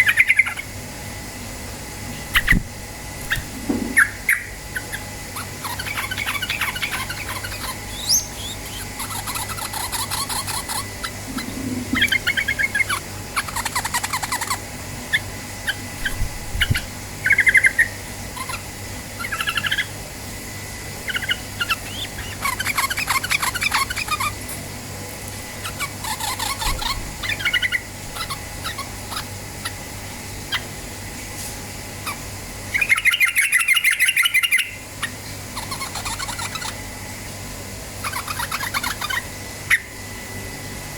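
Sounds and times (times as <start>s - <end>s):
bird chirping and trilling: 0.0s - 0.8s, 2.2s - 20.0s, 21.0s - 24.6s, 25.5s - 30.8s, 32.0s - 36.9s, 38.0s - 40.0s
faint low hum: 1.7s - 30.6s.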